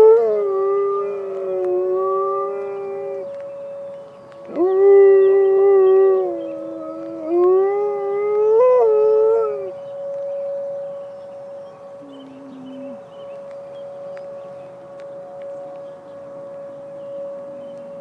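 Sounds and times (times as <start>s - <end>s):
dog howling: 0.0s - 3.4s, 4.4s - 9.8s, 12.0s - 13.1s
emergency siren tone: 0.0s - 18.0s.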